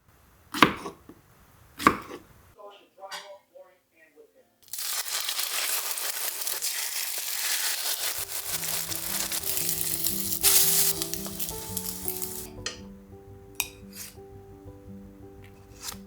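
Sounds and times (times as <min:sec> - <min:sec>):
crackling sizzle: 0:00.0 - 0:02.6, 0:04.6 - 0:16.0
soft music with held notes: 0:08.2 - 0:16.0.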